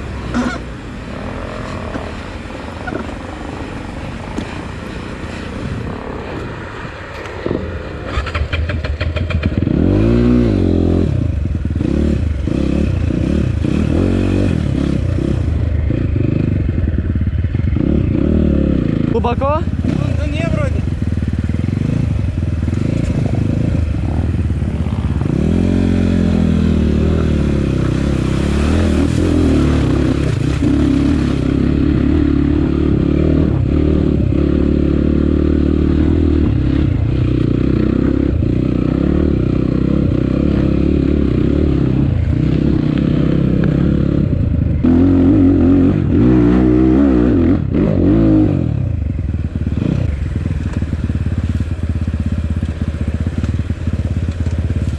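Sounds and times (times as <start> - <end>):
motorcycle engine revving: 0.0 - 54.9
motorcycle clatter and scraping: 4.2 - 10.2, 18.8 - 33.8, 48.9 - 54.9.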